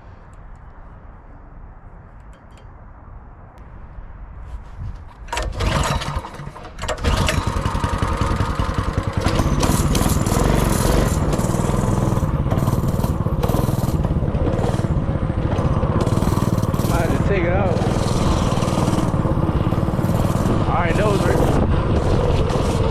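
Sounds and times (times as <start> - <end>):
small engine starting and running: 5.3 - 22.9.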